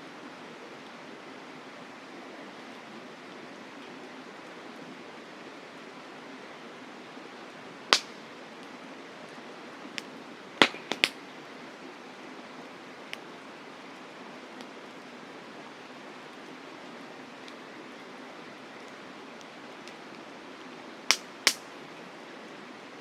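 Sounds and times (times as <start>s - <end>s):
steady fire hiss: 4.0s - 23.0s
campfire pops and snaps: 7.9s - 8.7s, 10.0s - 11.2s, 21.1s - 21.7s.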